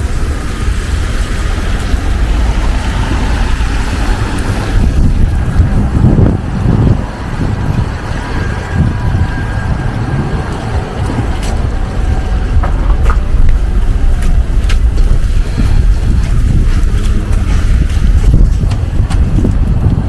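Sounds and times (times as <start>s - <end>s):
passing traffic: 0.0s - 20.0s
wind buffeting microphone: 0.0s - 20.0s.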